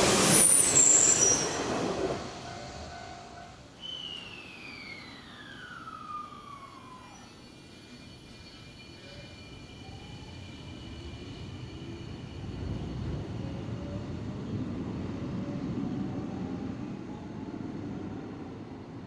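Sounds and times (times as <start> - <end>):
electric train rumble: 0.0 - 19.0
faint whine sliding in pitch: 4.0 - 8.5.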